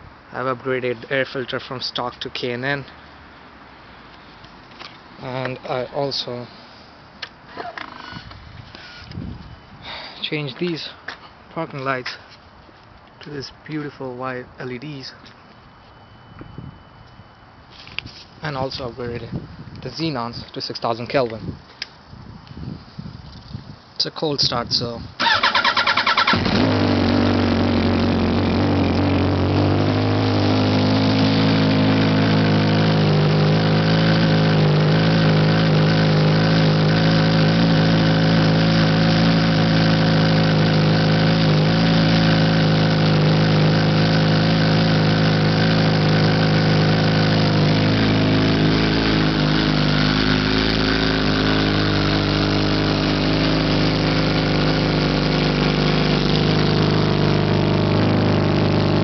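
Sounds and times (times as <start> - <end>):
motorcycle engine idling: 25.2 - 59.0.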